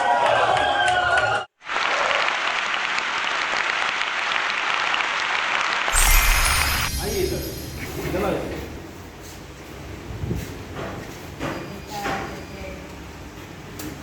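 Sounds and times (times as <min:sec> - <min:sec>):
people clapping: 0:00.0 - 0:05.9.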